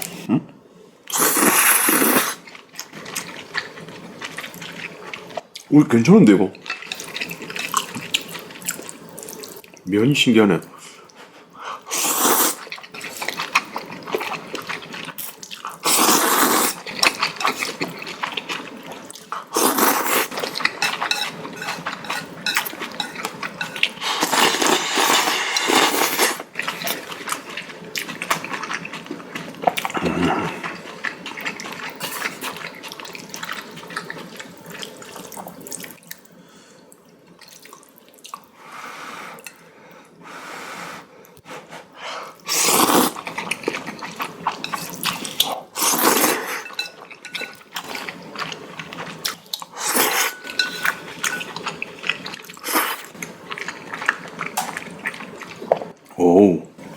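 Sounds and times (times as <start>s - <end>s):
noodles being slurped: 1.1s - 5.4s, 11.9s - 36.0s, 42.4s - 55.7s.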